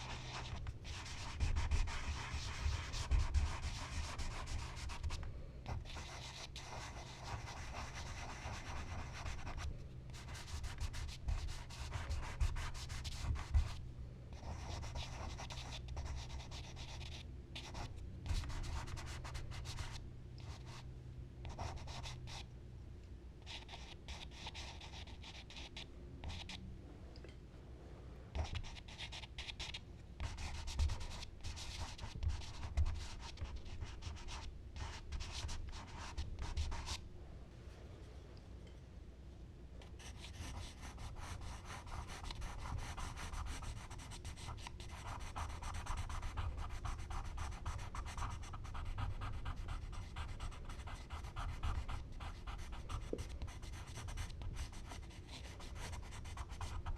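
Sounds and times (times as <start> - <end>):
low steady hum: 0.0 - 56.9
charcoal scratching on paper: 40.1 - 56.9.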